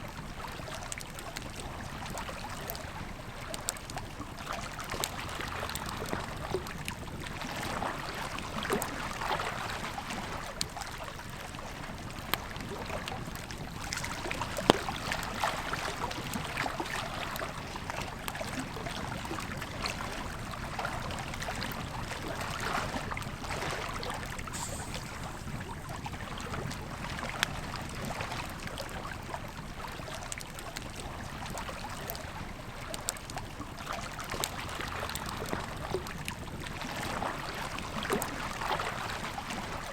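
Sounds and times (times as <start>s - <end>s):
river flowing: 13.8s - 28.9s.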